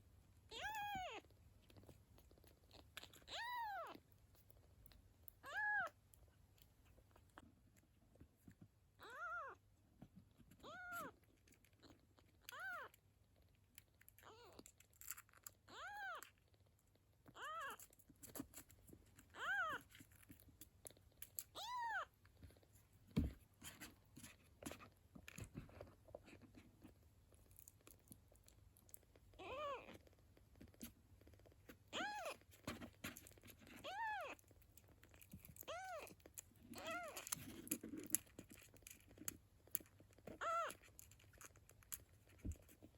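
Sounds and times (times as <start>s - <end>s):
kitten mewing: 40.4s - 40.8s.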